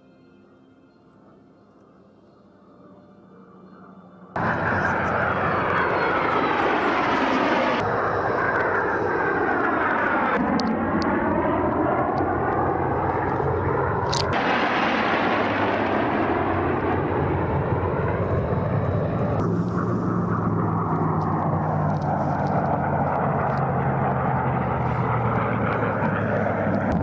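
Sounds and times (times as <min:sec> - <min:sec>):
jet aircraft passing low: 0:02.6 - 0:27.0.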